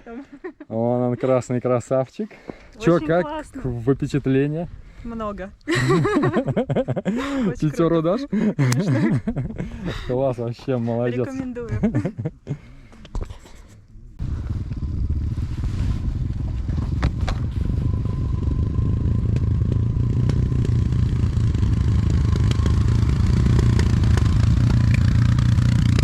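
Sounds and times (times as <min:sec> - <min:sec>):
motorcycle engine rumbling: 0:14.0 - 0:26.0.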